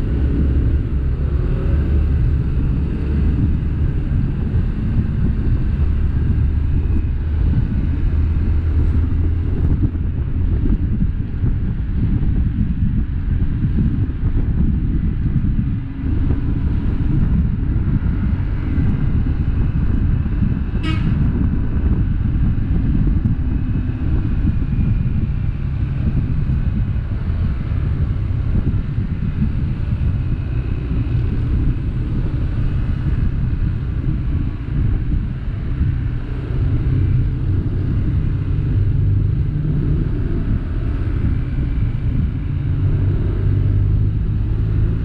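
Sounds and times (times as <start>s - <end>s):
low rumble of vehicles driving: 0.0s - 45.0s
car horn toot: 20.8s - 21.2s.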